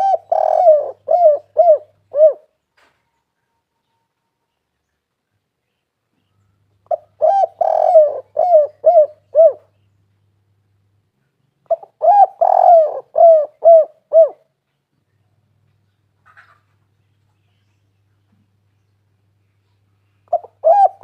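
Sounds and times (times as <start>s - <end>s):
dove cooing: 0.0s - 2.5s, 6.8s - 9.8s, 11.6s - 14.5s, 20.3s - 21.0s.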